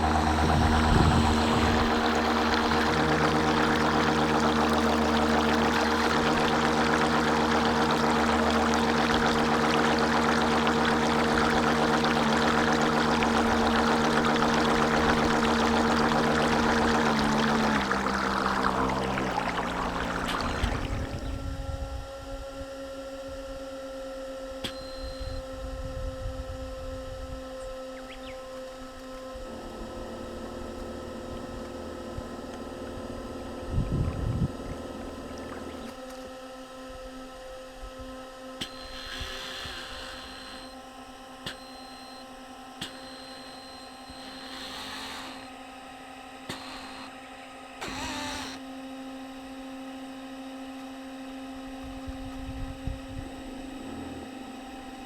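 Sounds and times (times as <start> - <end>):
water splashing against boat hull: 0.0 - 21.4
boat motor whine: 0.0 - 55.0.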